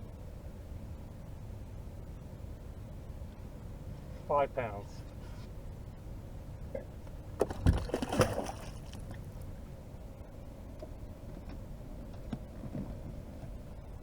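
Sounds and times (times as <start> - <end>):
wind: 0.0 - 14.0
water against a boat: 3.0 - 14.0.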